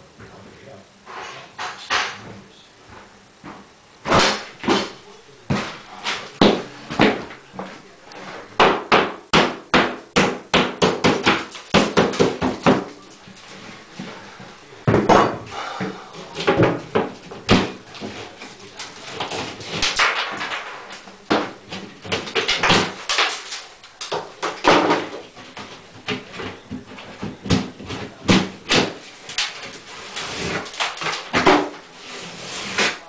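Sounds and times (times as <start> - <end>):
drywall cracking and crumbling: 4.0 - 33.0
hammer knocking on drywall: 6.4 - 7.3, 8.6 - 13.0, 14.9 - 18.2, 24.1 - 29.0, 30.3 - 31.8.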